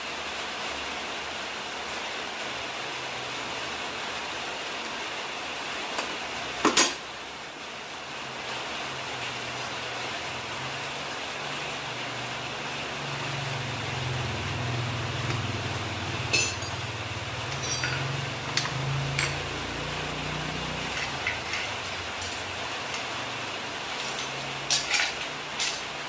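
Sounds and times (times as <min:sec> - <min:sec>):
tools and metal parts clinking: 0:16.3 - 0:19.8, 0:20.4 - 0:23.2, 0:23.8 - 0:26.0.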